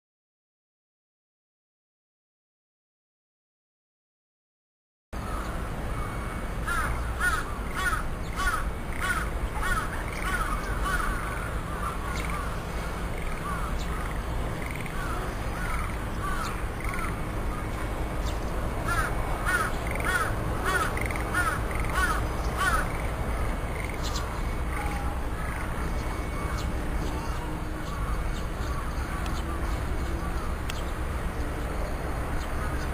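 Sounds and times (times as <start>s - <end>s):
bird calling harsh notes: 18.9s - 23.0s.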